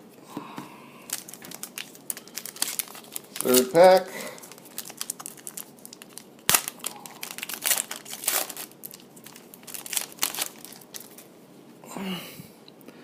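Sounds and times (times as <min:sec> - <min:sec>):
wrapper tearing and crinkling: 0:01.1 - 0:11.2.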